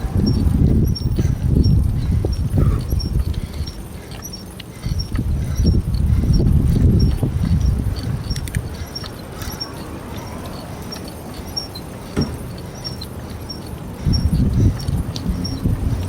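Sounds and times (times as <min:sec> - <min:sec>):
small high ticks: 0:00.0 - 0:16.0
tyres and wind rumble: 0:00.0 - 0:16.0
knock: 0:12.2 - 0:12.4.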